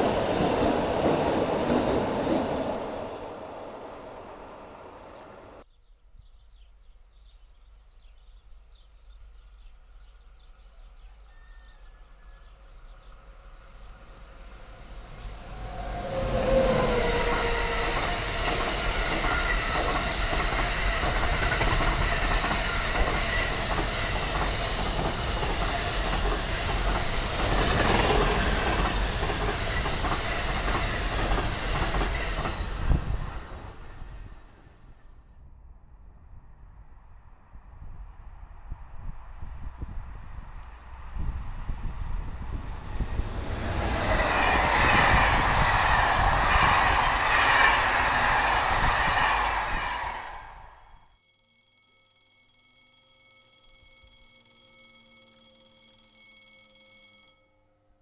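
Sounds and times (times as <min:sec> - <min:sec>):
freight train wheels clattering: 0:15.2 - 0:33.8, 0:42.8 - 0:50.7.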